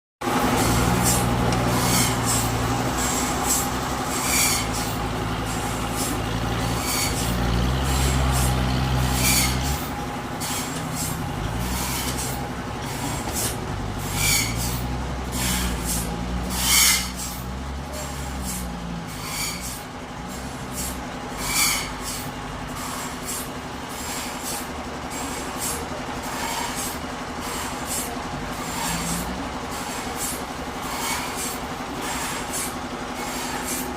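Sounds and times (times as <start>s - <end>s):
forklift engine revving: 0.2s - 33.9s.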